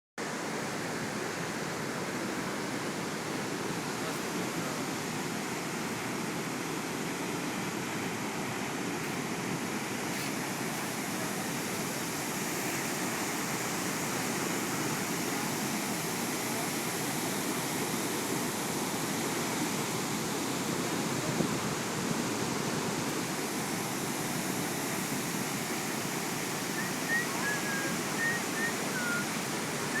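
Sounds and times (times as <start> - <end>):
waterfall rushing: 0.2 - 30.0.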